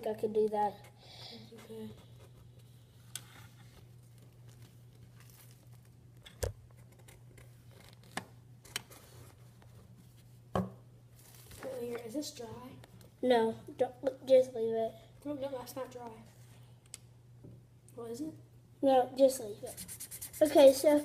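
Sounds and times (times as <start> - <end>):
faint paper rustling: 1.5 - 6.0, 11.2 - 12.2.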